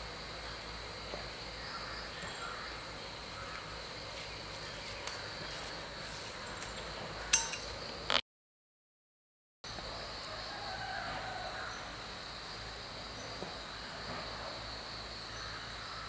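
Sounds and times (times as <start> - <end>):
metallic utensil clink: 7.4 - 7.7.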